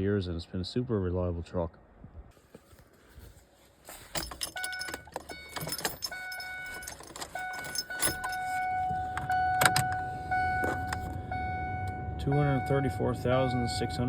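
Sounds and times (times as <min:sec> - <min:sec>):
keys jangling at ignition: 0:04.0 - 0:08.8
dashboard warning chime: 0:04.2 - 0:14.0.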